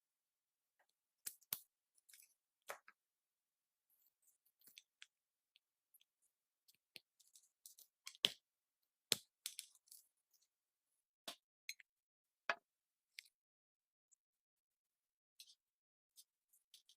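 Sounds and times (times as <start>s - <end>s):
small clicks and taps of parts: 4.5s - 8.4s, 9.1s - 10.0s.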